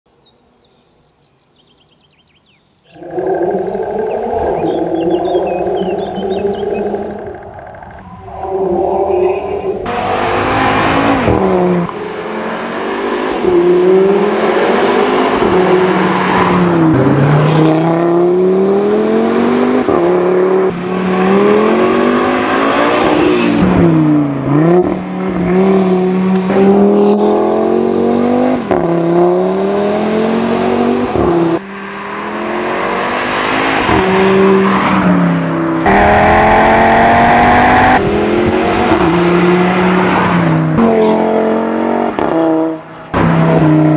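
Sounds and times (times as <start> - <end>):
car engine accelerating hard: 2.9 - 8.5, 9.6 - 43.9.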